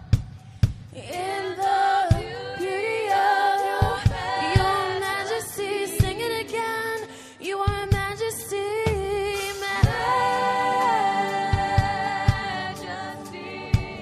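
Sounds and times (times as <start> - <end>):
voices singing long notes: 1.0 - 6.5, 9.6 - 14.0.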